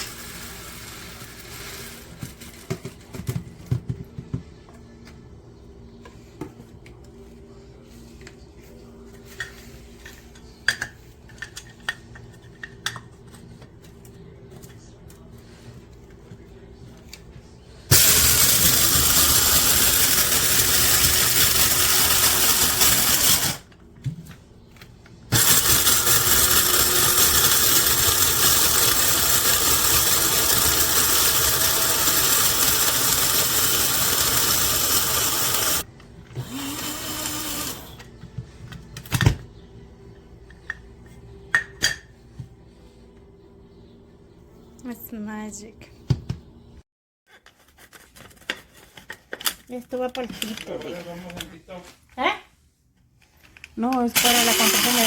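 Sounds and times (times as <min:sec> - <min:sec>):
electric coffee grinder whirring: 0:00.0 - 0:02.4, 0:17.9 - 0:23.7, 0:25.3 - 0:38.1, 0:54.2 - 0:55.0.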